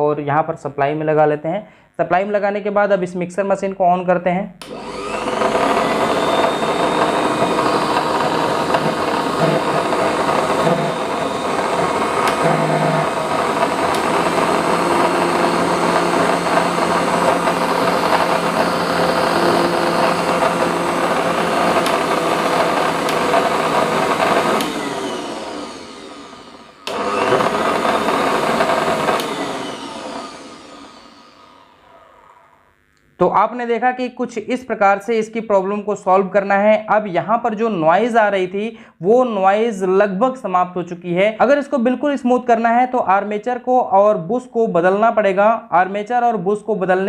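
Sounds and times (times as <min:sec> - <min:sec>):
mixer grinder motor running: 0:04.6 - 0:32.9.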